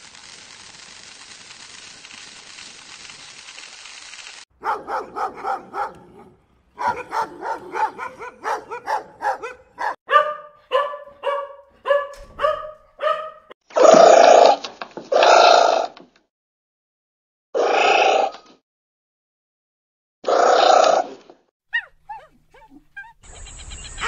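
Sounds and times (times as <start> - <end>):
dog barking: 4.6 - 13.5, 21.7 - 23.2.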